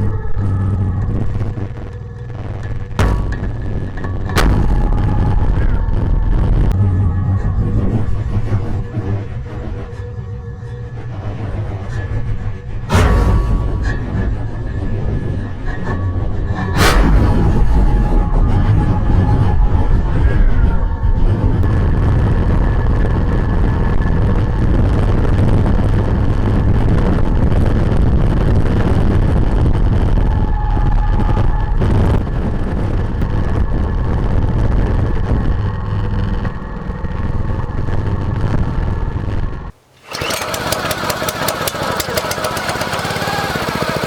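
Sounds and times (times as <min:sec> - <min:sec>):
small gasoline engine running: 0:39.9 - 0:44.0.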